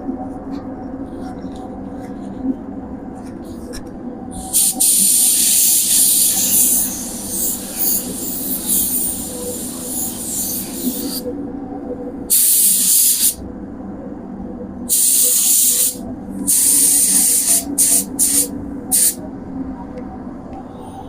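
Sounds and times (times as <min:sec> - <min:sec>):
steady hum: 0:00.0 - 0:21.0
spray gun hissing: 0:14.9 - 0:19.2.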